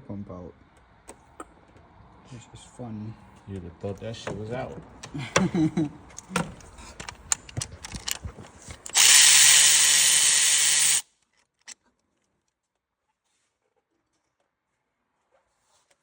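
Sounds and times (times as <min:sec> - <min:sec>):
handheld power tool running: 0:07.9 - 0:11.0.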